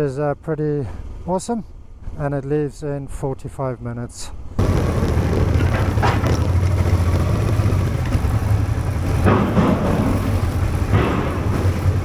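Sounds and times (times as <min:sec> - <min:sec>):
road or wind noise: 0:04.3 - 0:12.0
vehicle engine droning: 0:04.6 - 0:12.0.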